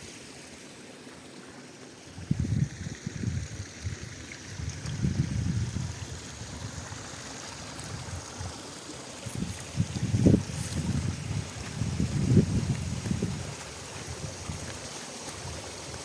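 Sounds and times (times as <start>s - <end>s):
rushing mountain water: 0.0s - 16.0s
wind buffeting microphone: 2.2s - 7.1s, 9.2s - 16.0s.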